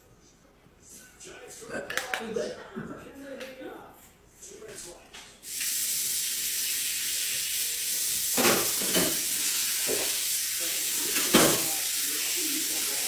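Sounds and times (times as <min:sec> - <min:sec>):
steady hiss: 0:05.4 - 0:13.0.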